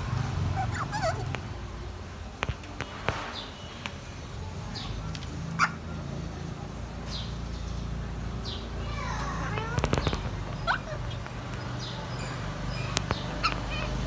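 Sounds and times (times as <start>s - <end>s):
parrot chirping: 0.0s - 2.3s, 8.9s - 14.0s
sharp clicks: 1.2s - 4.2s, 9.2s - 14.0s.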